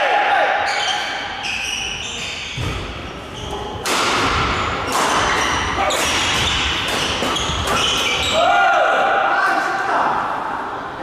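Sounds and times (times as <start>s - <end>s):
shoes squeaking on court floor: 0.7s - 3.8s, 4.4s - 8.4s
racket striking shuttlecock: 3.8s - 8.2s.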